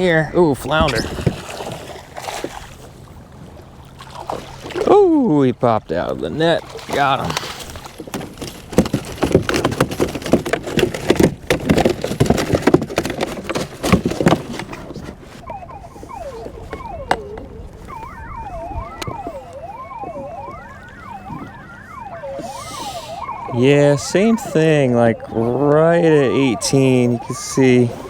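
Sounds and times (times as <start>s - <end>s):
clicks and knocks of fish handling: 6.7s - 23.3s
sirens wailing: 15.4s - 28.0s.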